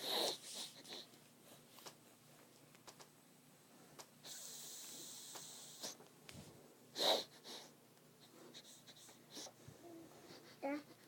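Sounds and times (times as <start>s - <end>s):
child hissing breath: 0.0s - 1.1s, 4.3s - 6.0s, 7.0s - 7.8s
child snorting: 0.0s - 1.1s, 4.2s - 6.0s, 6.9s - 7.8s, 8.5s - 11.0s.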